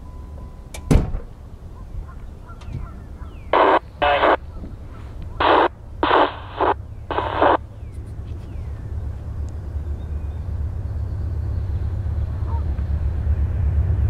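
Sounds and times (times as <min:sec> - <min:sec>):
low steady rumble: 0:00.0 - 0:14.0
scanner radio static bursts: 0:03.5 - 0:04.5, 0:05.4 - 0:07.6.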